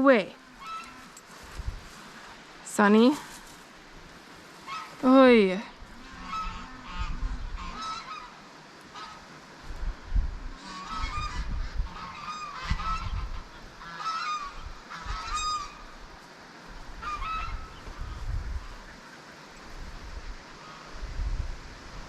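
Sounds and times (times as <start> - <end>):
wind buffeting microphone: 0.2 - 3.4, 4.7 - 8.3, 9.6 - 22.0
geese honking: 0.5 - 1.2, 4.6 - 5.2, 6.0 - 9.3, 10.6 - 16.0, 17.0 - 19.3, 20.6 - 21.0.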